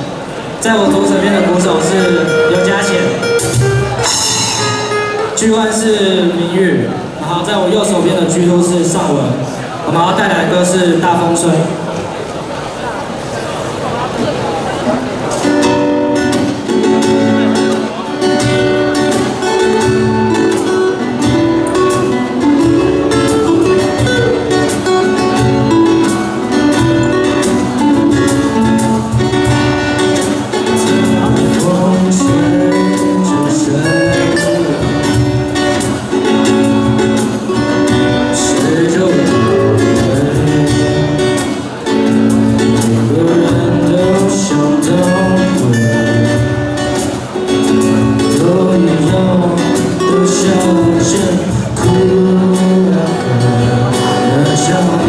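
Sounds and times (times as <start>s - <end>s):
electric and acoustic guitars: 0.0s - 55.0s
drum kit beat: 3.2s - 5.4s, 15.4s - 55.0s
lead vocal singing: 30.7s - 35.5s, 38.2s - 41.8s, 42.4s - 46.8s, 47.9s - 55.0s.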